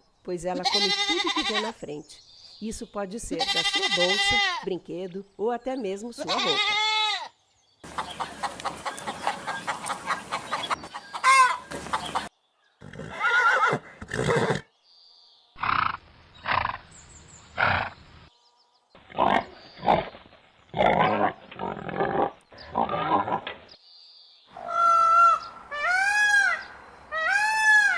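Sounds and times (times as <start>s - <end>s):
farm animal calls: 0.5s - 1.8s, 3.3s - 4.7s, 6.2s - 14.6s, 24.5s - 27.9s.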